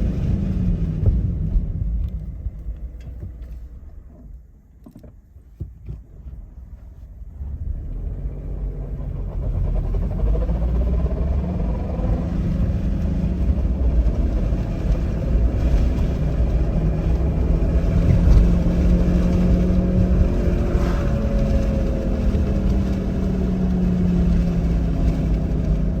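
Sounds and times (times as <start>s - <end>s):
road rumble: 0.0s - 26.0s
humming whine: 6.0s - 26.0s.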